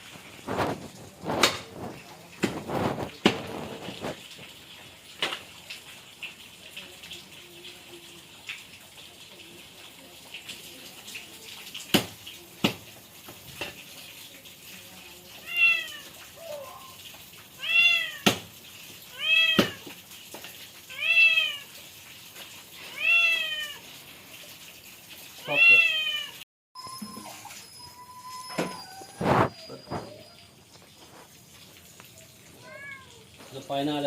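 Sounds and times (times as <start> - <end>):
cat meowing: 15.4 - 17.0, 17.6 - 18.3, 19.1 - 19.9, 20.9 - 21.7, 22.8 - 23.8, 25.4 - 26.4, 32.5 - 33.4.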